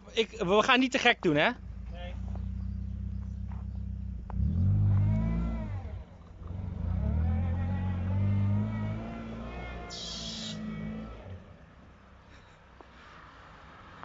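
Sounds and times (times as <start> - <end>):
race car engine revving: 1.6 - 11.6.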